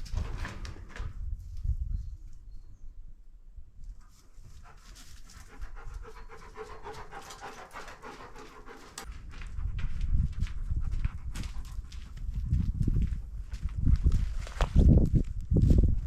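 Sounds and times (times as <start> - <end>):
dog panting: 4.4 - 12.4.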